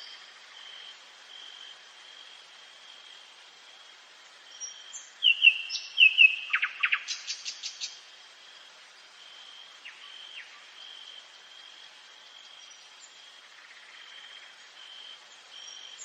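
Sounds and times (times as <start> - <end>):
nightingale singing: 4.5 - 8.0, 9.8 - 10.7.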